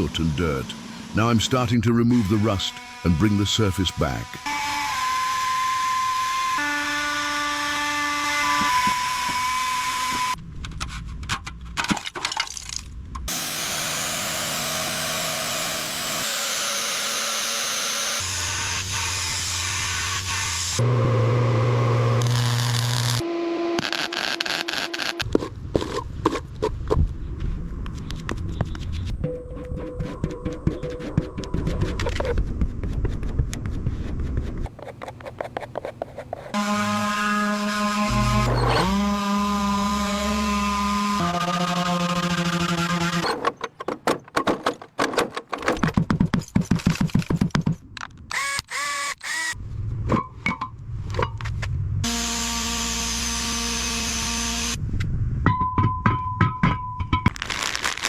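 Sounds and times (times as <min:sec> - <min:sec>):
power tool scraping metal: 0:00.0 - 0:10.4, 0:13.3 - 0:25.3, 0:36.0 - 0:43.5.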